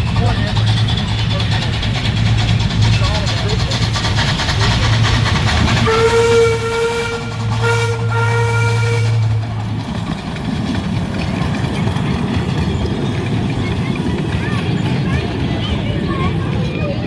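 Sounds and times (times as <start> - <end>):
steam whistle blasts: 5.8 - 9.4.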